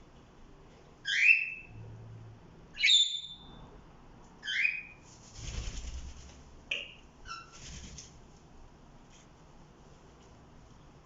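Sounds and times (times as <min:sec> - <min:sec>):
parrots calling: 0:01.0 - 0:01.7, 0:02.7 - 0:03.5, 0:04.4 - 0:05.0.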